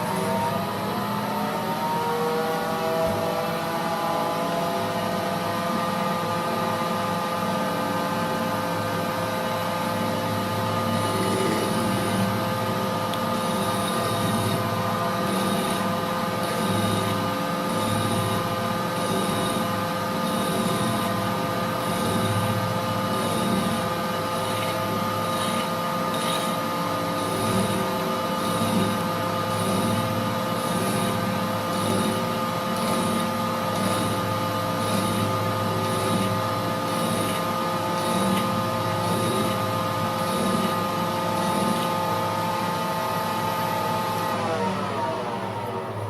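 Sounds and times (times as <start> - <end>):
lathe gearing whine and rumble: 0.0 - 46.0.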